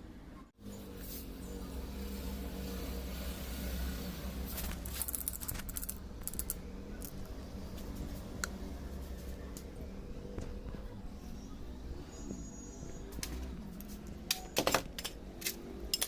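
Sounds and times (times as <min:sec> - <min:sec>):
steady low hum: 0:00.0 - 0:16.0
small metal parts clicking: 0:04.6 - 0:07.3, 0:13.8 - 0:16.0.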